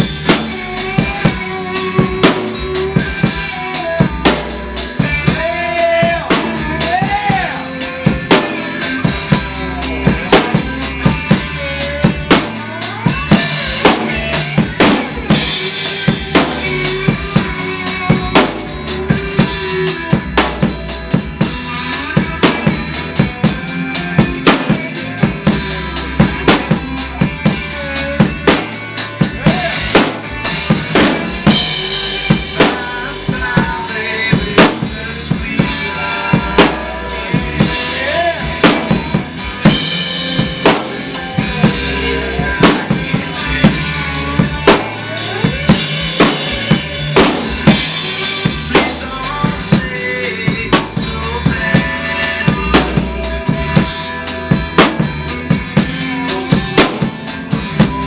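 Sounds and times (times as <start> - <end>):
pitched lines with bending notes: 0.0 - 58.0
rock drum kit beat: 0.0 - 58.0.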